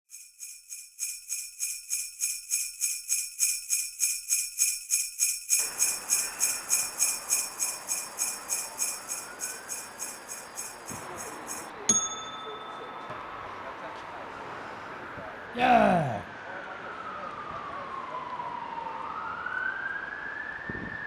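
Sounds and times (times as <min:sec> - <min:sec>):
sleigh bells shaken: 0:00.0 - 0:12.4.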